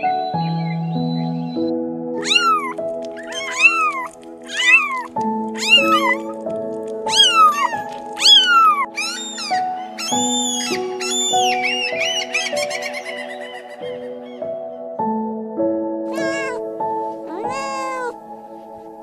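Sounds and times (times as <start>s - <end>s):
soft background music: 0.0s - 19.0s
kittens meowing: 2.2s - 6.4s, 7.1s - 14.1s, 16.1s - 18.2s.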